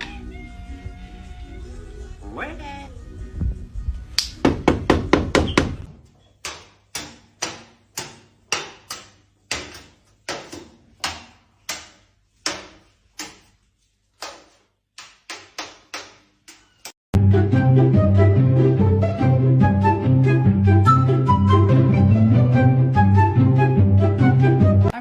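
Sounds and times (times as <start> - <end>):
sharp knocking on hard surface: 4.4 - 5.9.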